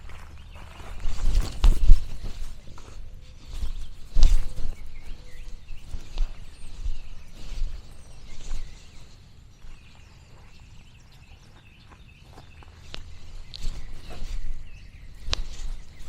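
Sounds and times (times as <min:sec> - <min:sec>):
small birds chirping: 0:00.0 - 0:16.0
sharp clicks: 0:15.2 - 0:15.8.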